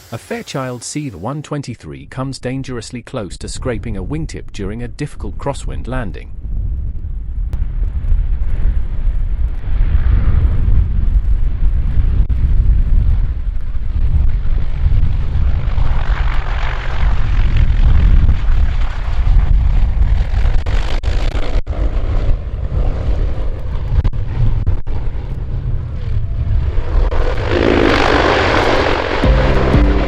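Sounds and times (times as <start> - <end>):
music: 29.2 - 30.0.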